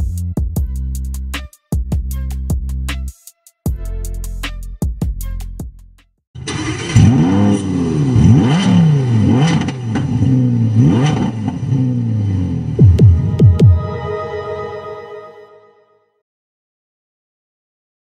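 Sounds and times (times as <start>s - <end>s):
music: 0.0s - 6.2s, 12.8s - 16.2s
car engine revving: 6.4s - 13.8s.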